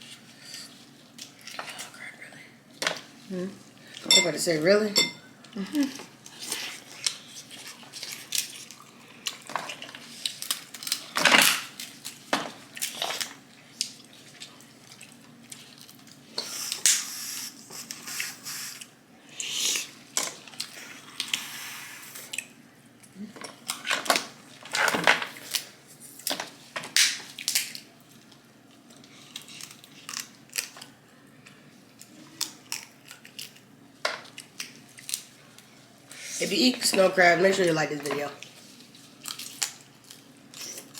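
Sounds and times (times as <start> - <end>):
crab shells cracking: 8.1 - 14.0, 26.3 - 28.4, 29.0 - 31.0.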